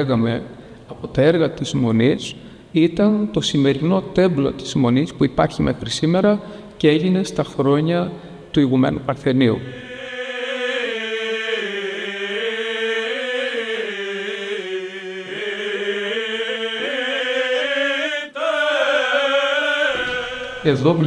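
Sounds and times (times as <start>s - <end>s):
men singing chant over drone: 9.7s - 21.0s.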